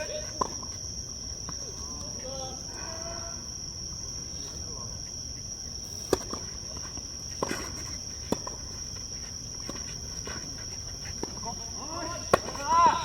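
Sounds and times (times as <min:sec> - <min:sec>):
insects chirring: 0:00.0 - 0:13.0
tennis ball impacts: 0:05.9 - 0:13.0.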